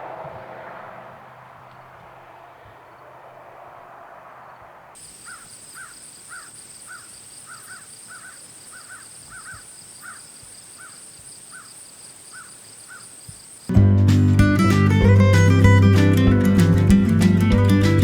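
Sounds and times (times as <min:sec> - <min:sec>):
bird calling: 0:05.0 - 0:13.7.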